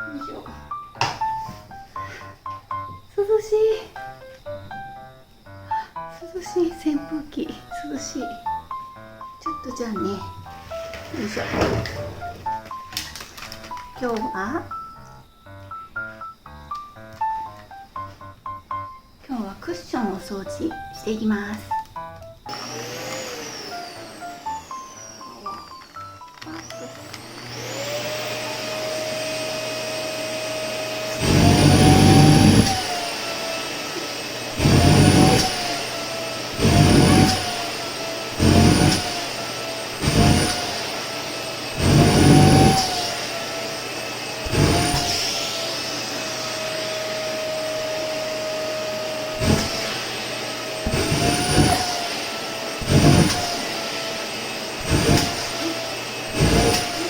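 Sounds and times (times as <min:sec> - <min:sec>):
vacuum cleaner motor whining: 0:00.0 - 0:18.1, 0:18.8 - 0:57.0
nozzle suction rush on fabric: 0:22.5 - 0:25.7, 0:26.9 - 0:57.0.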